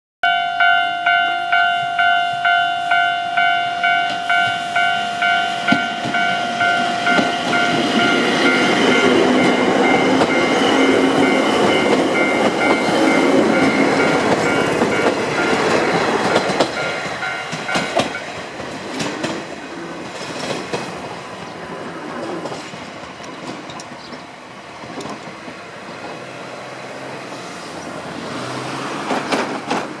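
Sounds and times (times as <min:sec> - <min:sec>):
level-crossing bell clanging: 0:00.2 - 0:18.5
electric train passing: 0:00.2 - 0:30.0
wheels clicking over rail joints: 0:03.4 - 0:26.2, 0:28.5 - 0:30.0.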